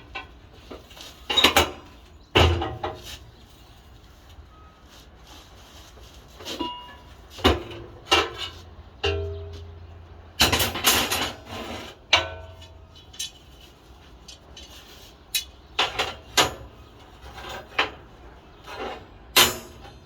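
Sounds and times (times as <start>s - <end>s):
steel pieces clanking: 10.5s - 13.5s.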